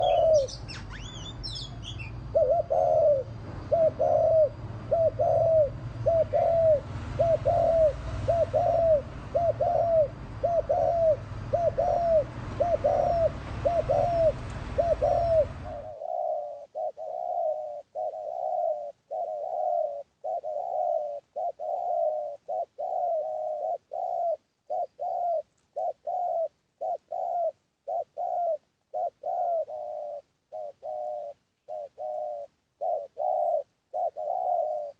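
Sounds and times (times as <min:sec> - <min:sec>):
dove cooing: 0:00.0 - 0:34.9
low hum and hiss: 0:00.0 - 0:34.9
small bird chirping: 0:00.0 - 0:34.9.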